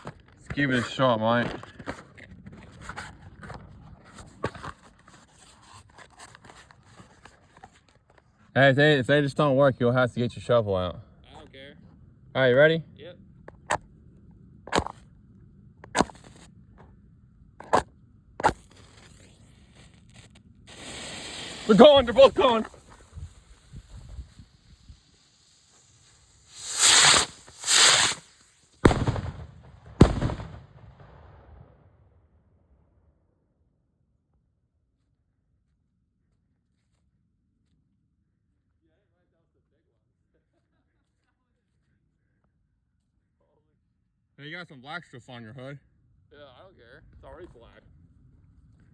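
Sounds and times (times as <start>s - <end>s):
firework rockets hissing: 15.9s - 16.5s, 18.4s - 30.6s
firework bangs: 18.4s - 31.7s.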